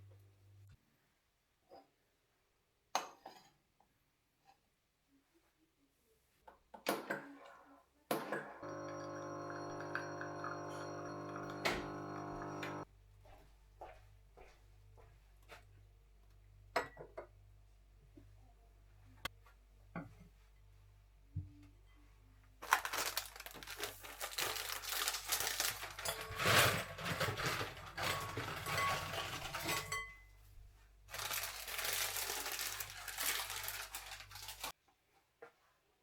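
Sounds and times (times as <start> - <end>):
packaging crinkling: 22.6 - 28.6, 31.1 - 34.7.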